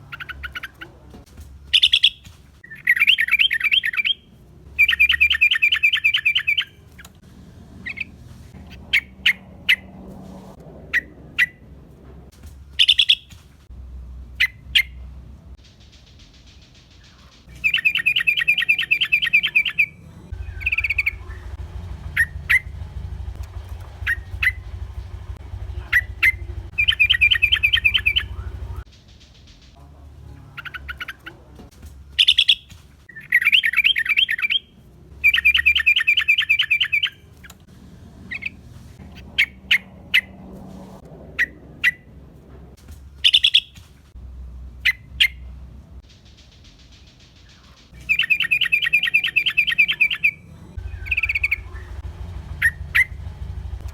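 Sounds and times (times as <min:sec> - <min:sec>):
bulbul chattering calls: 0:01.8 - 0:02.2, 0:12.8 - 0:13.3, 0:17.5 - 0:28.8, 0:32.2 - 0:32.7, 0:43.2 - 0:43.8, 0:47.5 - 0:53.6
sharp bird notes: 0:12.8 - 0:13.3, 0:17.5 - 0:28.8, 0:32.2 - 0:37.2, 0:43.2 - 0:43.8, 0:47.5 - 0:53.7.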